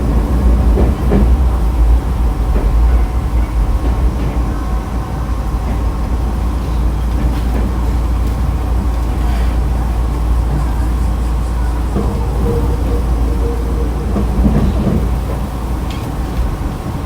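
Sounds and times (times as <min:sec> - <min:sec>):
rail-joint clicks: 0:00.0 - 0:17.0
train wheels rumbling on rail: 0:00.0 - 0:17.0.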